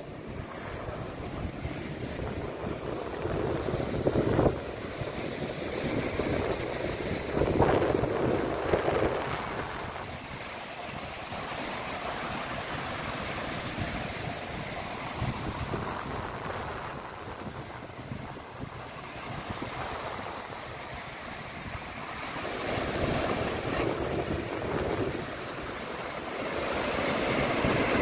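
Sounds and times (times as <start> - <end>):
ocean waves breaking on shore: 0.0 - 28.0
wind rumbling on microphone: 0.0 - 28.0.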